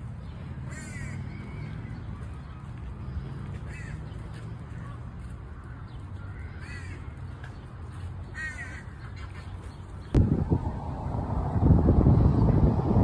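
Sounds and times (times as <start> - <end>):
bird harsh calls: 0.4 - 7.6, 8.2 - 10.2
low background rumble: 10.1 - 13.0.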